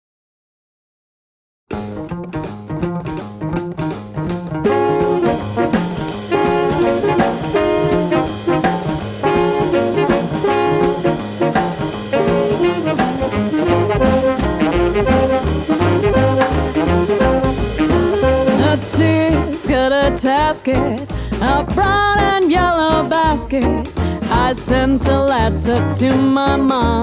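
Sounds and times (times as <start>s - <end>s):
drums swing beat: 1.7s - 27.0s
guitar comping: 1.7s - 27.0s
upright bass: 1.7s - 27.0s
tenor saxophone: 4.6s - 20.2s
clarinet: 4.6s - 20.9s
trombone: 4.6s - 27.0s.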